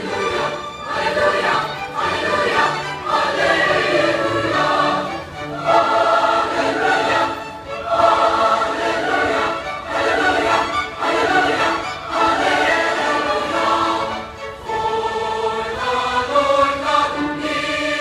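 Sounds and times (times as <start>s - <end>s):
large choir singing: 0.0s - 18.0s.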